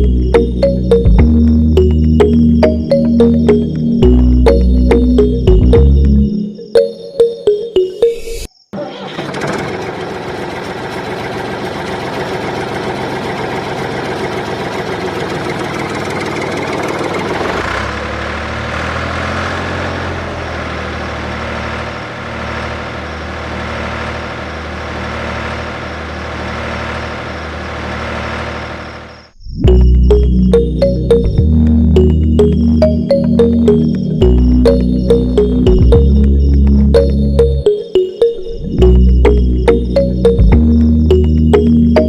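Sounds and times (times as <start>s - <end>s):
threshing machine engine running: 8.8s - 29.3s.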